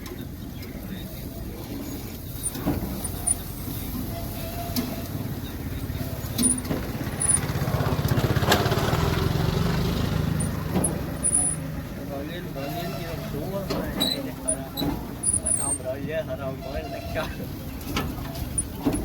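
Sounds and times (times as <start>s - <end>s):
motor engine humming: 4.9s - 12.2s
sharp clicks and knocks: 10.4s - 11.7s, 17.8s - 19.0s.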